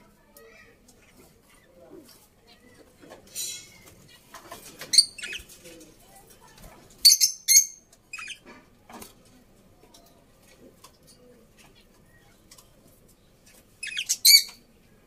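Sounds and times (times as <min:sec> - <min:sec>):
bird squawks and chirps: 0:13.8 - 0:14.6.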